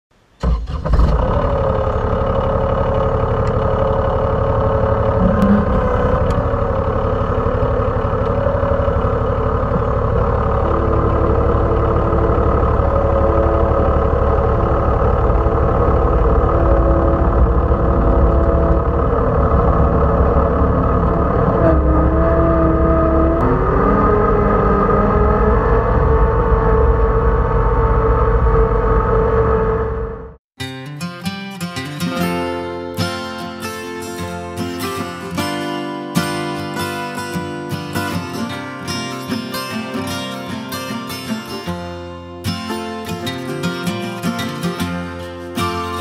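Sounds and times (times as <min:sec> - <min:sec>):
tractor diesel engine under load: 0:00.2 - 0:30.4
rotary mower cutting grass: 0:00.5 - 0:29.5.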